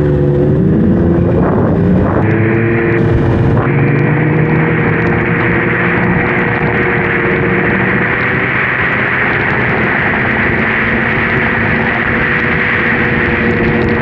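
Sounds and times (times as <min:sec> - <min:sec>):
constant rush of noise: 0:00.0 - 0:14.0
snowmobile engine running: 0:00.0 - 0:14.0.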